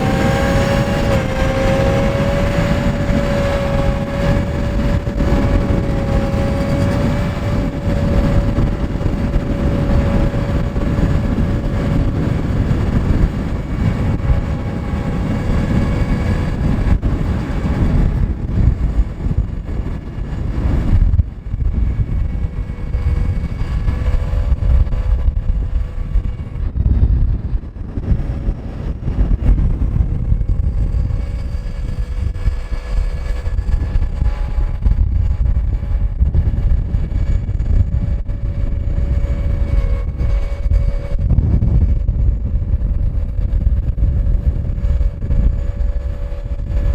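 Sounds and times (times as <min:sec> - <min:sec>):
diesel truck engine running: 0:00.0 - 0:46.9
steady whine: 0:00.0 - 0:46.9
wind buffeting microphone: 0:00.0 - 0:46.9.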